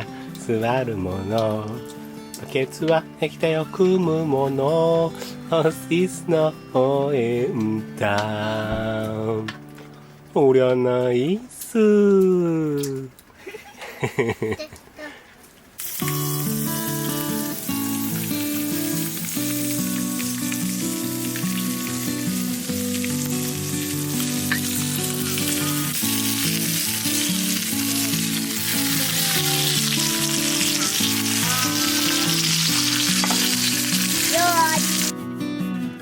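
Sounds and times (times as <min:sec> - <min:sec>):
background music: 0:00.0 - 0:11.3, 0:15.8 - 0:36.0
food sizzling in a hot pan: 0:15.8 - 0:35.1.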